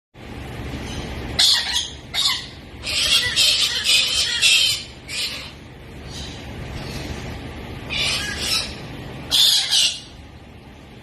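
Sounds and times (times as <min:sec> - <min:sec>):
parrot screeching: 0:01.4 - 0:07.0, 0:07.9 - 0:10.2.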